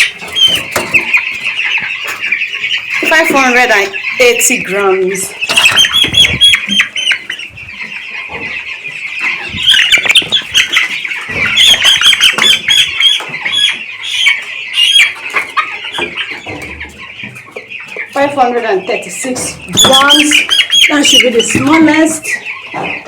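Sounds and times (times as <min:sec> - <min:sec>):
wings flapping and scuffling: 0:00.0 - 0:18.4
chicks peeping: 0:00.0 - 0:23.0.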